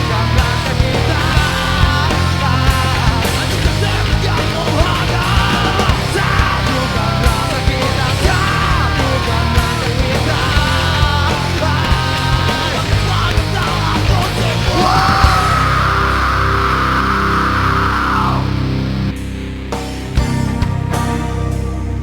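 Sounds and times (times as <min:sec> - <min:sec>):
steady drum beat: 0:00.0 - 0:16.2, 0:18.6 - 0:21.4
heavy rock band playing: 0:00.0 - 0:22.0
melodic lead line bending pitch: 0:18.6 - 0:22.0.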